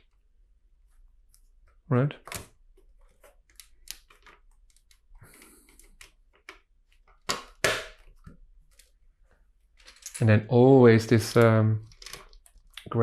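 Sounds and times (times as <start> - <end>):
plastic bricks clicking and clattering: 9.8 - 10.3, 11.8 - 12.8.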